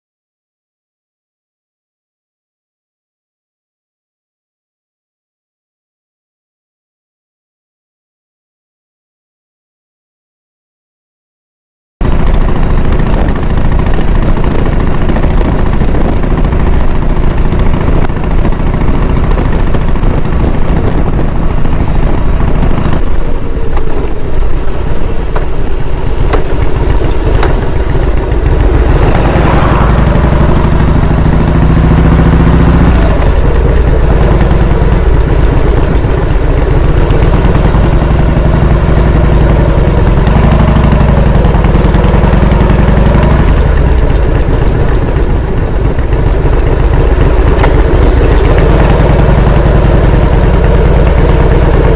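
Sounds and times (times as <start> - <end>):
vehicle engine droning: 12.0 - 51.9.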